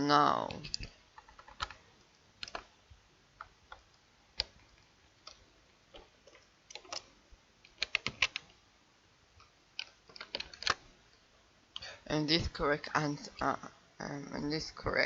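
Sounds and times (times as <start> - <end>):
keyboard and mouse clicks: 0.4 - 2.7, 3.4 - 8.6, 9.4 - 10.8.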